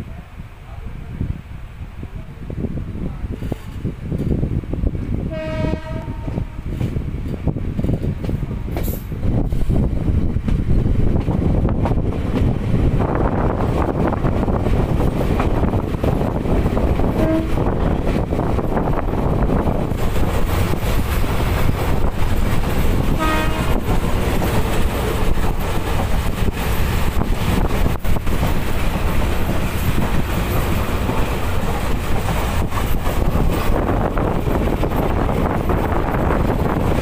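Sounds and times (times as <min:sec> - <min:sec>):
train rumble and rushing air: 0:00.0 - 0:37.0
train horn toot: 0:05.3 - 0:06.8, 0:17.1 - 0:17.8, 0:23.0 - 0:23.9
wheels clicking over rail joints: 0:06.7 - 0:09.8.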